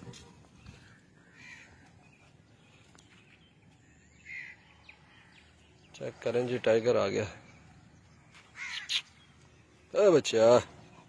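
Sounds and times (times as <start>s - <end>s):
short bird calls: 0.5s - 2.3s, 4.1s - 5.6s, 8.2s - 9.5s.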